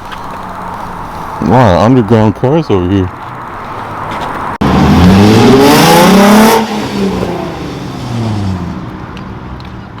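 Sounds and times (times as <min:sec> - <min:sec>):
car engine revving: 0:03.4 - 0:08.9.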